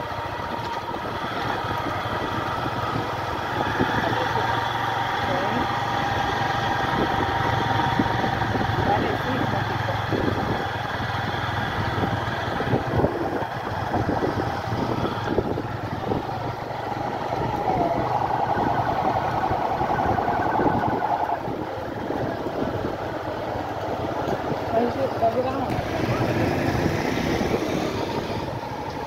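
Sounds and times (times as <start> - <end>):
vehicle engine running: 0.0 - 29.0
warbling tone: 16.0 - 22.1.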